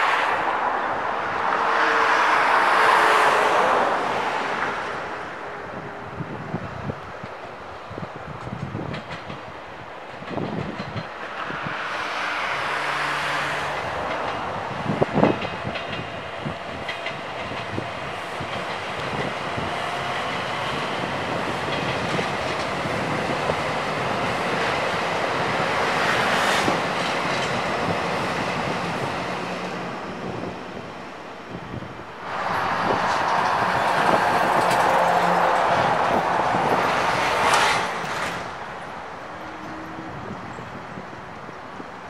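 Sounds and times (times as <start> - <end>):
train wheels clattering: 8.4 - 11.7, 13.6 - 28.0.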